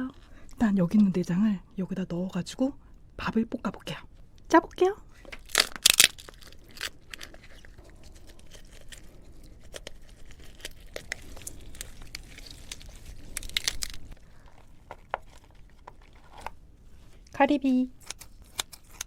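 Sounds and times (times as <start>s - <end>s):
clicks and wet scraping: 5.2s - 17.3s, 18.0s - 19.0s.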